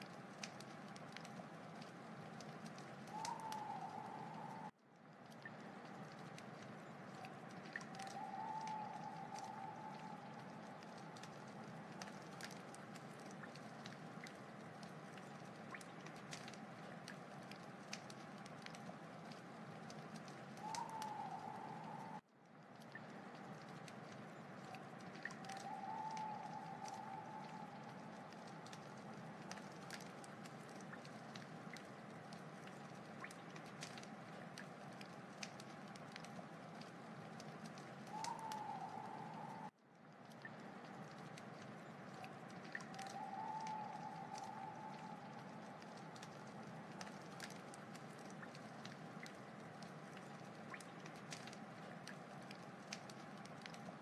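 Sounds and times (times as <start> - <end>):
wood fire crackling: 0.0 - 54.0
faint wavering whistle: 3.1 - 4.7, 7.9 - 11.2, 20.6 - 22.2, 25.4 - 28.6, 38.1 - 39.7, 42.8 - 45.9.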